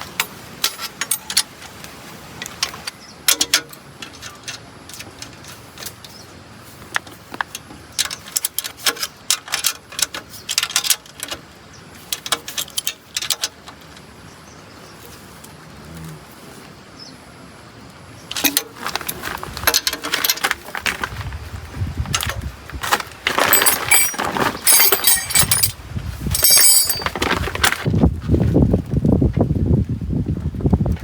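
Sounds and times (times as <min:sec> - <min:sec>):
metal tools clinking: 0:00.0 - 0:01.5, 0:02.5 - 0:06.2, 0:06.9 - 0:11.4, 0:12.0 - 0:14.0, 0:18.3 - 0:21.1, 0:22.1 - 0:27.8.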